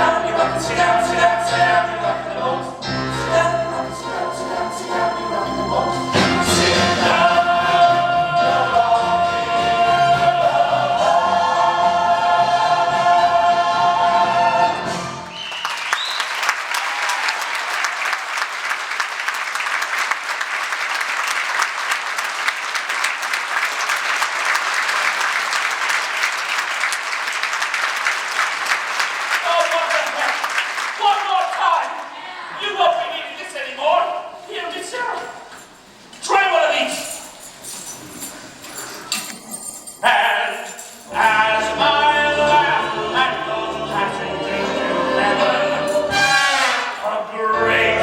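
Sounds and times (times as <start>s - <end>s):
audience applause: 15.2s - 32.4s.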